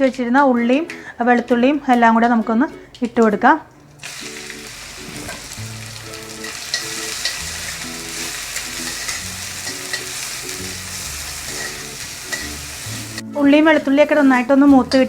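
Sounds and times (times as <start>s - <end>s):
shallots and garlic sizzling in oil: 3.9s - 15.0s.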